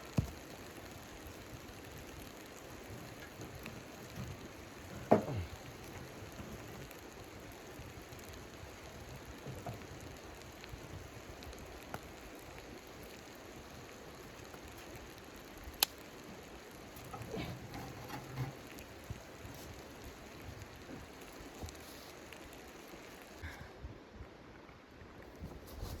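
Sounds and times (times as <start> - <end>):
snow pattering on tent fabric: 0.0 - 23.4, 25.3 - 26.0
wood stove fire crackling: 0.0 - 23.6.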